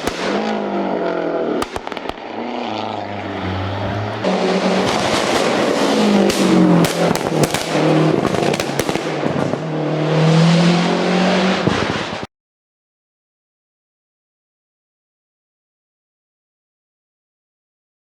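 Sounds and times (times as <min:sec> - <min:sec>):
sharp exhaust cracks: 0:00.0 - 0:09.6
car engine revving: 0:00.0 - 0:12.3.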